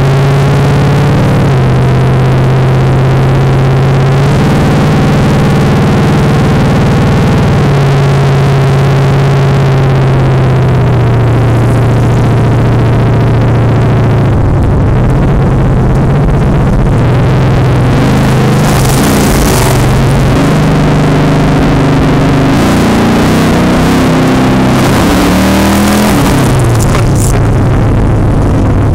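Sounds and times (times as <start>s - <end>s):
car engine running loud: 0.0s - 28.9s
hissing noise: 25.9s - 28.9s.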